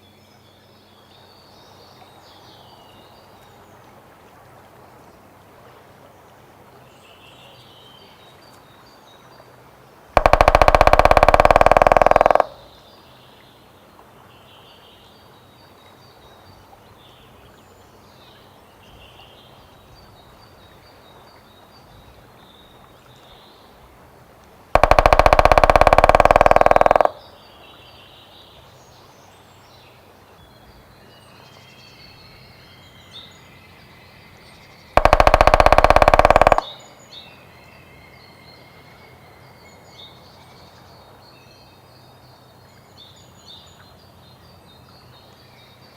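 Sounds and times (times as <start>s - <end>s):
faint birdsong: 6.1s - 24.0s, 24.8s - 45.9s
woodpecker drumming: 10.2s - 12.8s, 24.8s - 27.3s, 35.0s - 36.9s.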